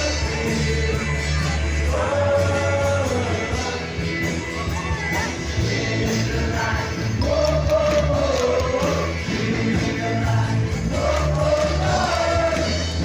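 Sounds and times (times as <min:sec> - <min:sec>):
band accompaniment: 0:00.0 - 0:13.0.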